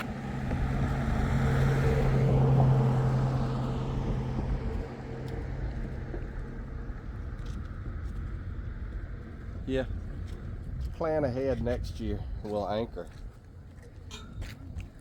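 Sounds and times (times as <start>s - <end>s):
vehicle engine passing by: 0.0s - 7.5s.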